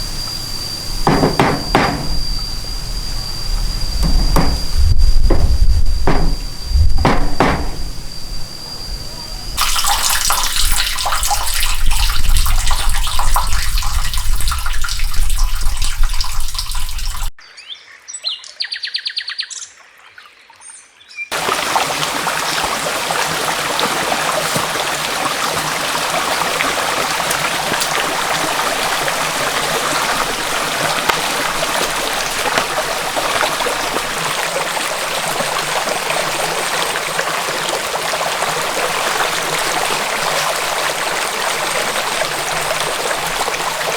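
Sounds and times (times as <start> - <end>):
birds chirping: 0.8 - 9.6
stream water rushing: 21.3 - 43.9.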